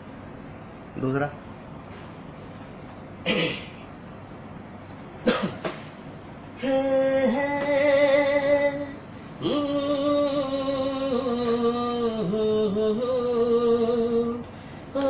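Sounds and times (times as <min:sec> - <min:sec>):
person singing long notes: 0:06.6 - 0:14.4.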